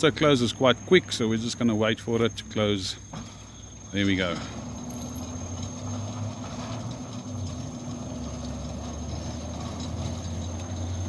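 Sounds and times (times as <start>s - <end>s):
gate motor humming: 0.0s - 11.0s.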